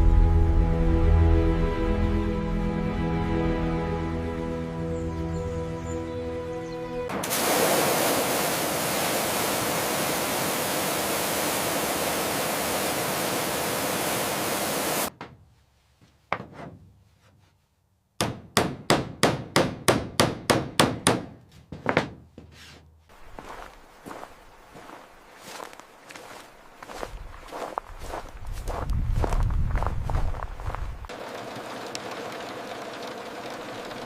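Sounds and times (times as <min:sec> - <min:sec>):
loud steady hiss: 0:07.1 - 0:15.1.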